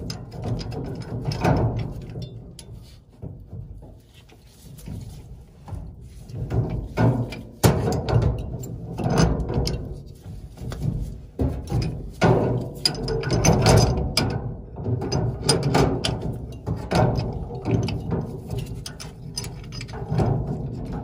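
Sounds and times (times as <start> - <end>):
sharp metal knocks: 6.4 - 10.0, 10.7 - 21.0.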